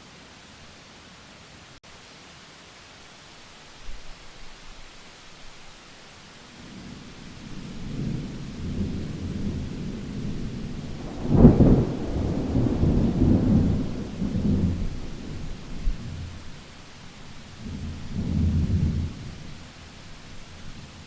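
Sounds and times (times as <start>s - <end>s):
steady rain: 0.0s - 21.0s
thunder rumbling and cracking: 7.4s - 16.4s.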